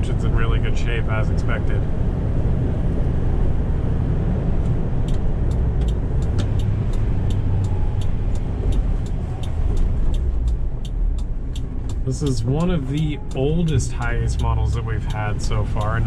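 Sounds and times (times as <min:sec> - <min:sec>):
road noise on bumpy road: 0:00.0 - 0:16.0
truck engine running: 0:00.0 - 0:16.0
light clicks: 0:04.6 - 0:16.0.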